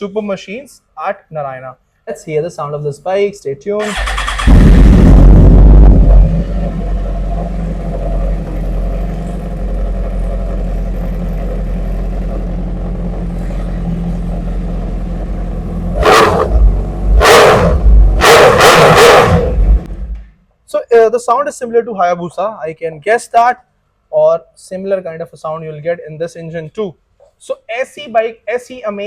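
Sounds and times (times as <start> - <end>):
motorcycle engine idling: 6.0 - 17.0.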